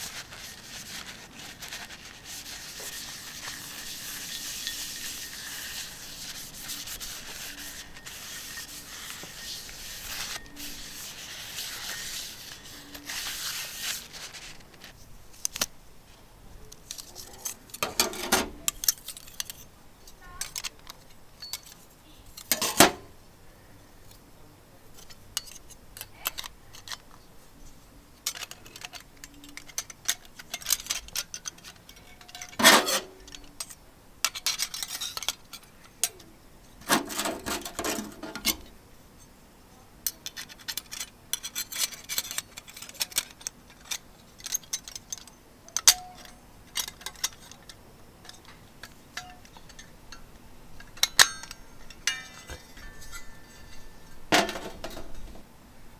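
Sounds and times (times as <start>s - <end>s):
utensils scraping and rustling: 0.0s - 15.7s, 16.7s - 23.1s, 24.9s - 39.4s, 40.0s - 55.5s
cookware clinking: 17.8s - 18.8s, 22.4s - 23.1s, 45.8s - 55.4s.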